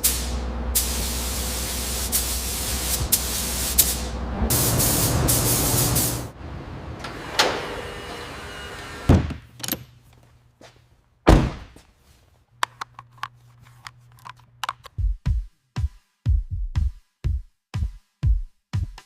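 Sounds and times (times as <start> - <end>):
car doors thudding shut: 9.0 - 9.5, 11.3 - 11.7.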